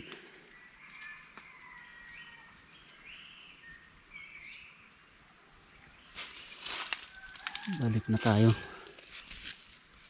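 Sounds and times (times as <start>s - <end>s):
birds chirping and whistling: 0.0s - 6.2s
brushing rustle: 6.1s - 10.0s.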